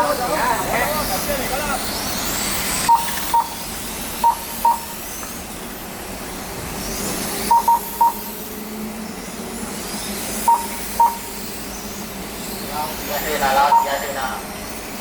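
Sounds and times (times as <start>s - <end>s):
short high timing beeps: 2.9s - 5.0s, 7.5s - 8.3s, 10.5s - 11.3s, 13.7s - 14.0s.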